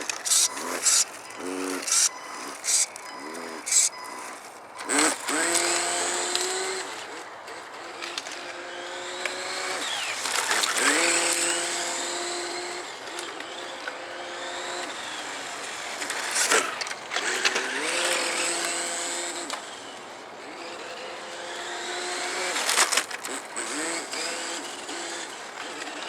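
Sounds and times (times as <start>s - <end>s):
sharp clicks: 0.0s - 8.4s
electric drive motor whine: 0.0s - 26.0s
rc car engine-sound device hum: 0.0s - 26.0s.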